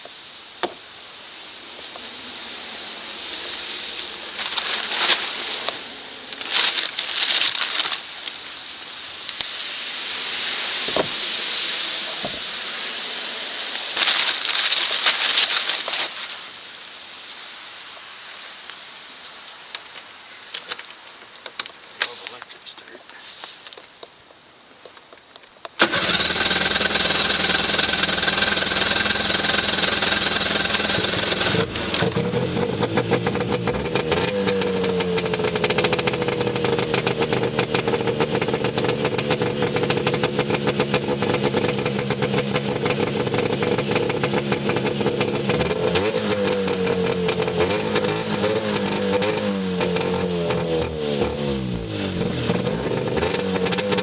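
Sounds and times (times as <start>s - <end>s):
snowmobile engine running: 25.8s - 54.0s.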